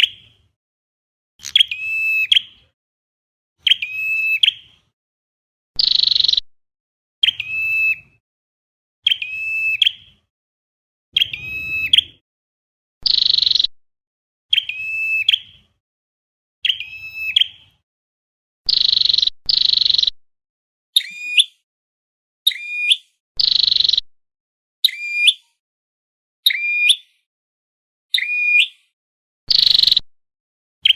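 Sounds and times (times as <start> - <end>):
recorded bird call: 1.4 - 2.8, 3.6 - 4.7, 5.8 - 6.5, 7.2 - 8.2, 9.0 - 10.3, 11.2 - 12.2, 13.0 - 13.7, 14.5 - 15.8, 16.6 - 17.8, 18.7 - 20.2, 21.0 - 21.6, 22.5 - 24.0, 24.8 - 25.6, 26.4 - 27.3, 28.1 - 30.1.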